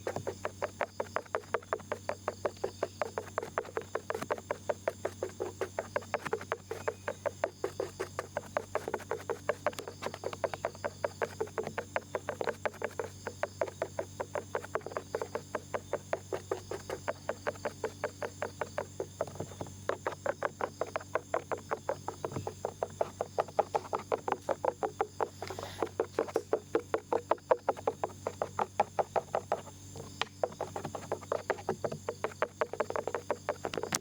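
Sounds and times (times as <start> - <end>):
ear pick scratching: 0.0 - 34.0.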